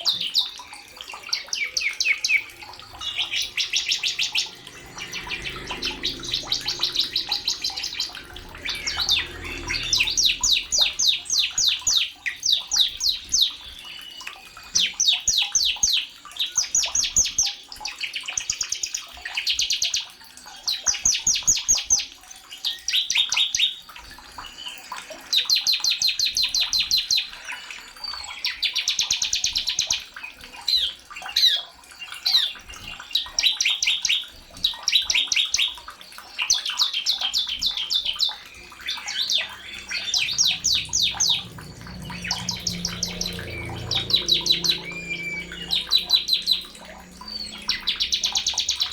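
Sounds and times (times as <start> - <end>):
bird singing high trills: 0.1 - 15.9, 37.0 - 48.9.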